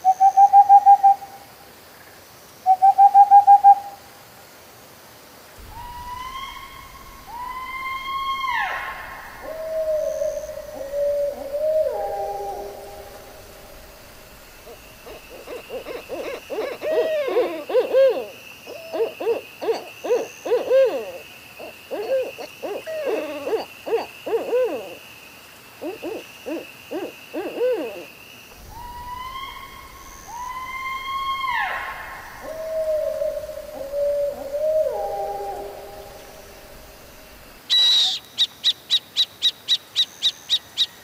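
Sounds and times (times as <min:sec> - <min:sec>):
owl hooting: 0:05.6 - 0:25.0, 0:25.8 - 0:38.2.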